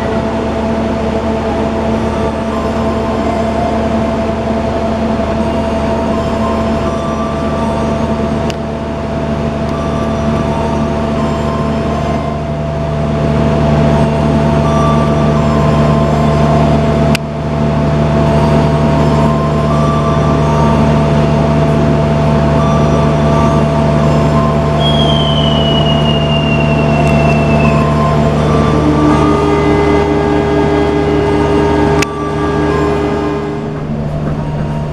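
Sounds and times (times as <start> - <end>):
train rail and wheel noise: 0.0 - 34.9
high squeal falling in pitch: 22.6 - 34.9.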